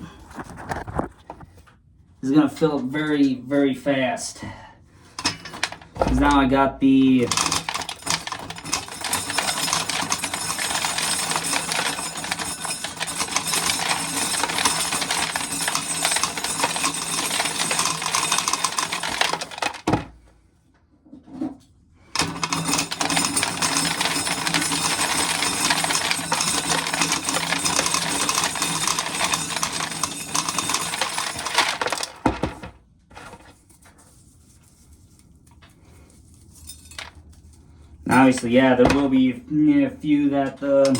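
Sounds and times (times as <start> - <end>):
kernels rattling into metal can: 5.2 - 6.4, 7.2 - 20.1, 22.2 - 32.7
corn sheller running: 5.2 - 20.2, 22.2 - 32.7.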